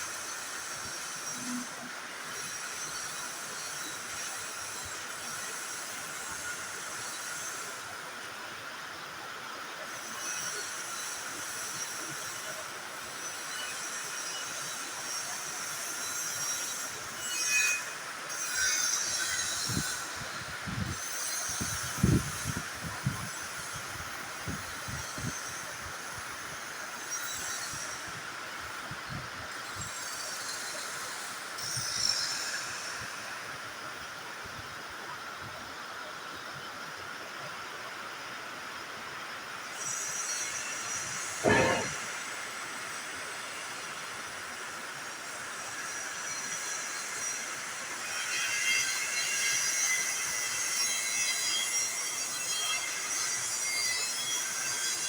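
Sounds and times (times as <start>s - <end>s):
welding arc hissing: 39.8s - 43.2s.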